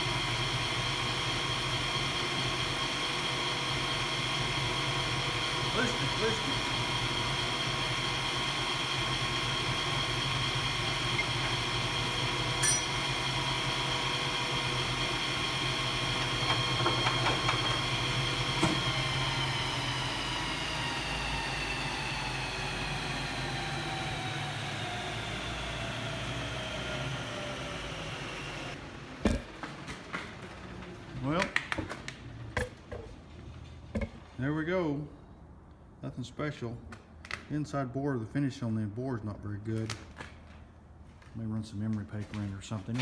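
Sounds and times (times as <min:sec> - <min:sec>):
lathe humming: 0:00.0 - 0:29.2.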